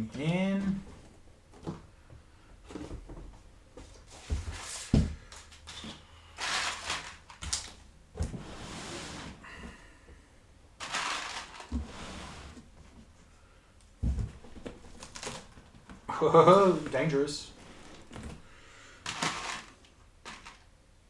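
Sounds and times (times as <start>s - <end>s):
rustling and scraping: 2.6s - 9.9s, 10.8s - 13.3s, 14.0s - 20.7s.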